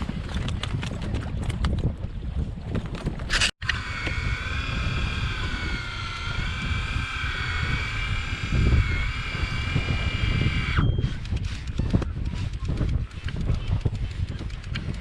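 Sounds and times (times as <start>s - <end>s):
low wind rumble: 0.0s - 15.0s
motor whine: 3.4s - 11.8s.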